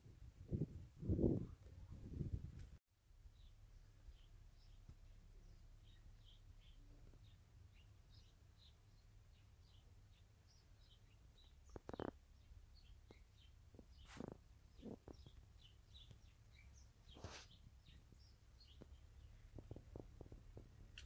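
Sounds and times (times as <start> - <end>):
faint bird chirps: 3.2 - 20.0.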